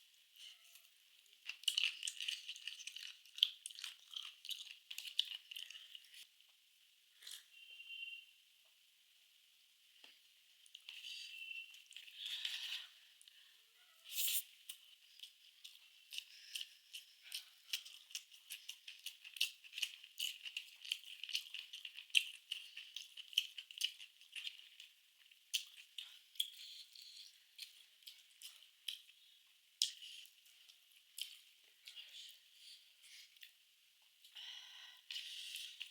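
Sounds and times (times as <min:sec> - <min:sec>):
food crunching while eating: 0:00.5 - 0:06.3, 0:14.2 - 0:32.4.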